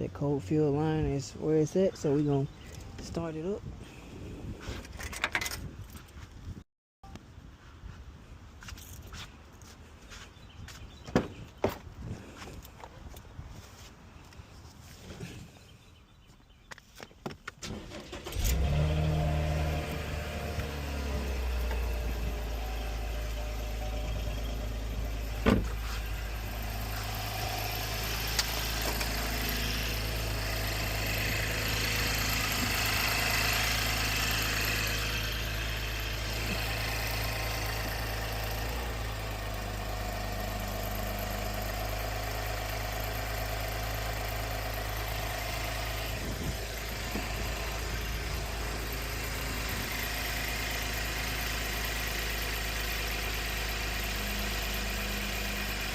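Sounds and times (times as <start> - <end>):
car engine idling: 17.8 - 55.9.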